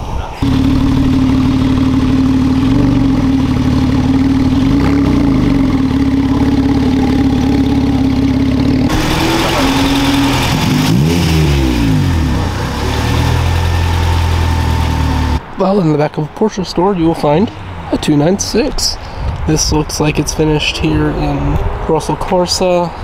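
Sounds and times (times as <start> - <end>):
car engine at low revs: 0.4 - 15.4
second car engine revving: 0.4 - 15.5.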